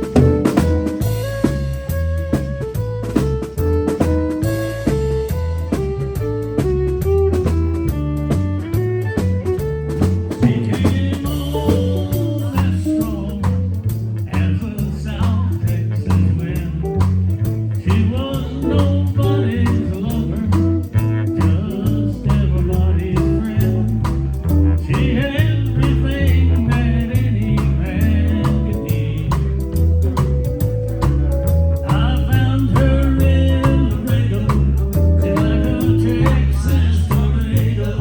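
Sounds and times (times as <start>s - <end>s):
country band playing: 0.0s - 38.0s
person singing: 10.3s - 29.8s, 31.6s - 38.0s.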